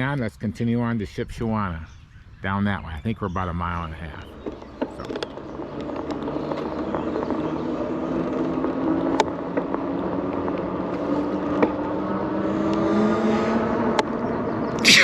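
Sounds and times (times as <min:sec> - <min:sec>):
tyre noise: 0:03.9 - 0:15.0
electric bike motor whining: 0:04.3 - 0:14.8.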